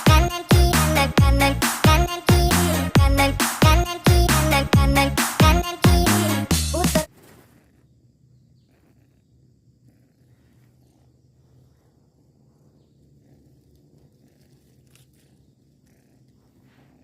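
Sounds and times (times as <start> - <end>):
faint low hum: 7.0 - 17.0.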